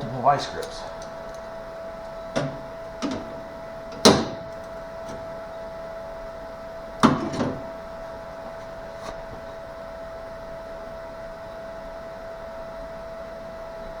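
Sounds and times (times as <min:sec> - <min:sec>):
steady hum: 0:00.0 - 0:14.0
metallic knocks and clanks: 0:02.4 - 0:05.2, 0:07.0 - 0:07.7.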